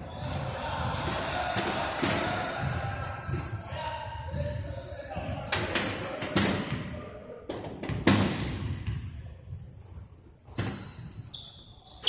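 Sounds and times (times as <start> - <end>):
shoes squeaking on court: 8.3 - 12.0.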